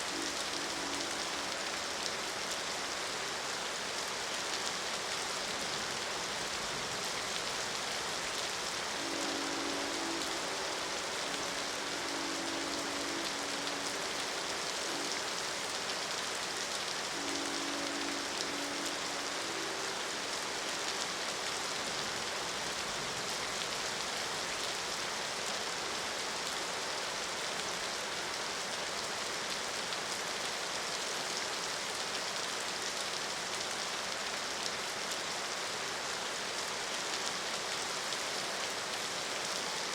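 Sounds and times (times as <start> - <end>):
rain hiss: 0.0 - 39.9
train horn chord: 0.1 - 1.8, 8.8 - 15.6, 17.0 - 20.8.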